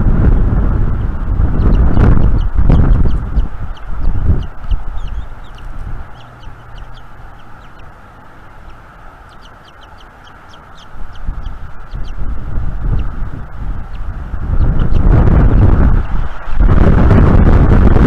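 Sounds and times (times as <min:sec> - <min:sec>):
wind buffeting microphone: 0:00.0 - 0:18.0
high bird chirps: 0:01.5 - 0:15.1.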